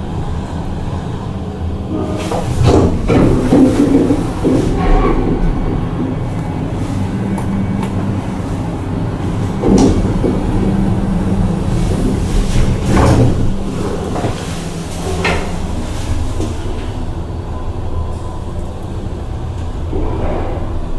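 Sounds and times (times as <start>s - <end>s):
elevator rumbling hum: 0.0s - 20.9s
elevator car knocks and clunks: 1.9s - 17.2s.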